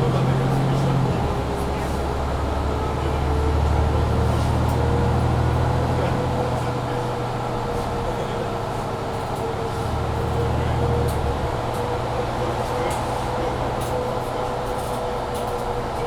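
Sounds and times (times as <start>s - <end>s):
bus diesel engine running: 0.0s - 16.0s.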